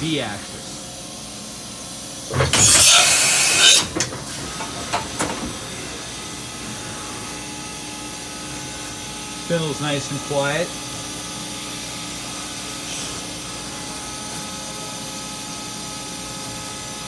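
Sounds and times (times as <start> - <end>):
machine spindle humming: 2.1 - 8.3
air hiss burst: 2.3 - 5.4.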